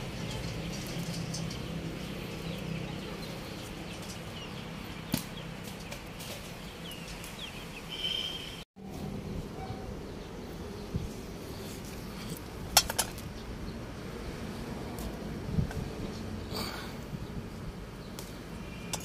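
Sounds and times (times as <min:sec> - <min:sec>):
faint bird chirps: 0:07.9 - 0:08.6.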